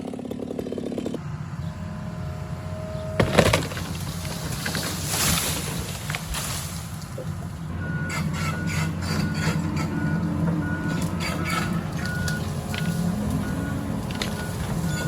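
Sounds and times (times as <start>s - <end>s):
diesel engine running: 0.0s - 15.0s
backup alarm beeping: 7.1s - 15.0s.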